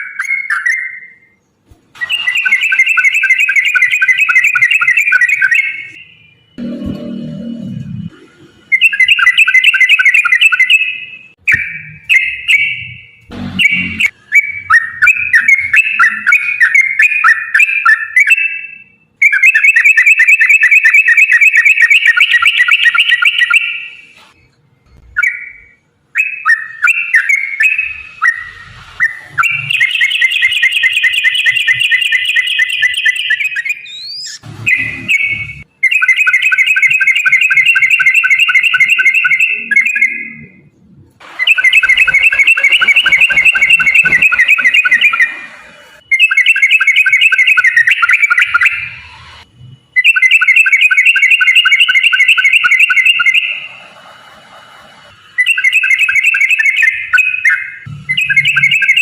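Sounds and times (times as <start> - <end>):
bulbul rapid chattering song: 26.4 - 40.4, 41.2 - 48.8.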